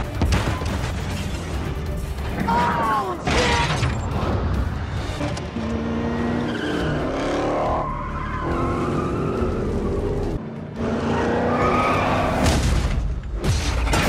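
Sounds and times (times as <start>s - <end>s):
car engines revving hard: 4.2s - 12.6s
tires squealing and skidding: 5.5s - 12.5s.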